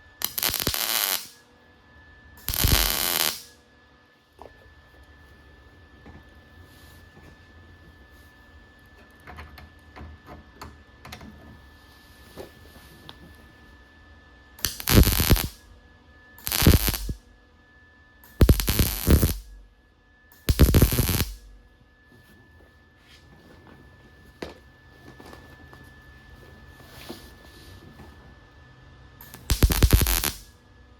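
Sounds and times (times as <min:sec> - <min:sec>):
welder crackling: 0:00.1 - 0:01.4, 0:02.4 - 0:03.5, 0:14.6 - 0:15.7, 0:16.4 - 0:17.2, 0:18.3 - 0:19.7, 0:20.4 - 0:21.6, 0:29.2 - 0:30.5.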